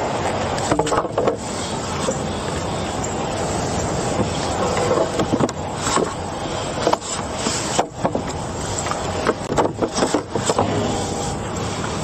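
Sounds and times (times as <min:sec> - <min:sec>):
traffic noise: 0:00.0 - 0:12.0
lumber boards knocking and scraping: 0:09.2 - 0:10.8.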